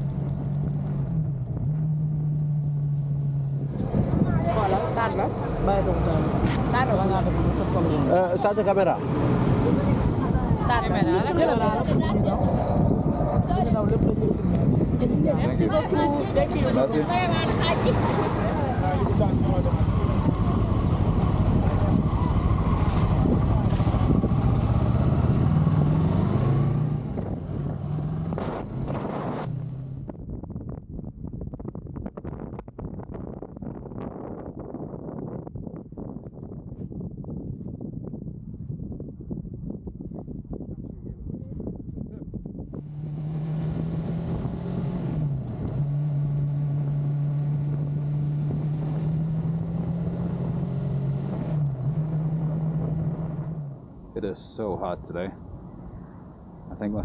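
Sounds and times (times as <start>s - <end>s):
wind on microphone: 3.2s - 8.4s, 9.0s - 53.9s
motorcycle engine running: 17.4s - 25.4s.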